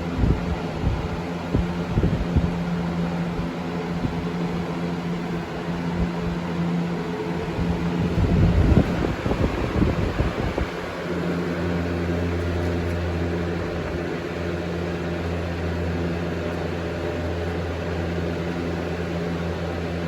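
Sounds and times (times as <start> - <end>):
rush of moving air: 0.0 - 11.9
low rumbling gusts: 0.0 - 12.5
box fan motor hum: 0.0 - 20.0.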